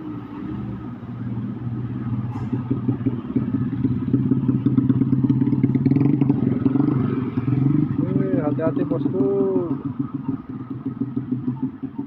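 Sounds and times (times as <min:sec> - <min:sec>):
truck diesel engine: 0:00.0 - 0:12.0.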